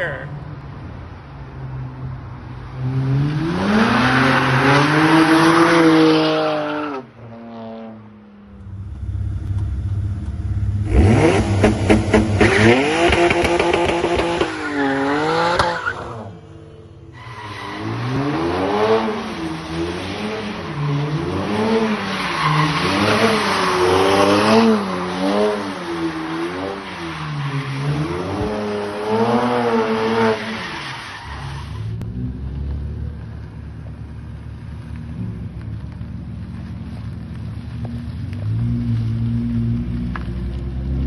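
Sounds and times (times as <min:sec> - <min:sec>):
car engine revving: 0:02.8 - 0:30.7.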